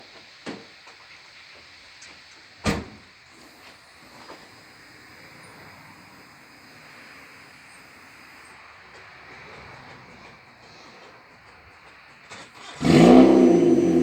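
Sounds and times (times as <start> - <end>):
steady background hum: 3.3 - 14.0.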